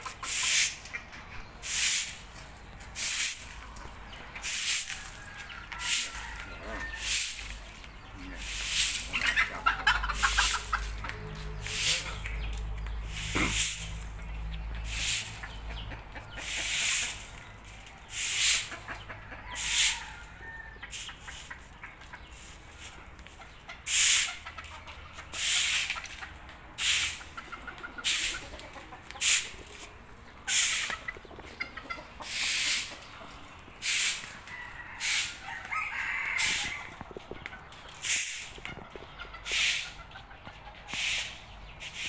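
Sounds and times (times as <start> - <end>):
chickens clucking: 0.0 - 42.0
hissing rustling bursts: 0.1 - 1.0, 1.6 - 3.8, 4.4 - 6.4, 7.0 - 12.1, 14.9 - 15.6, 32.2 - 33.1, 33.8 - 34.4, 37.9 - 40.0, 40.9 - 42.0.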